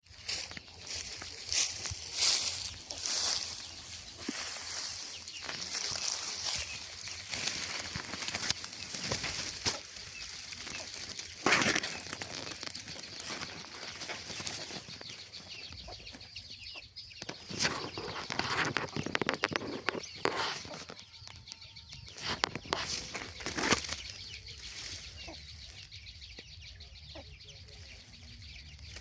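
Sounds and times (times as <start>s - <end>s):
birds flapping wings: 7.2s - 14.9s.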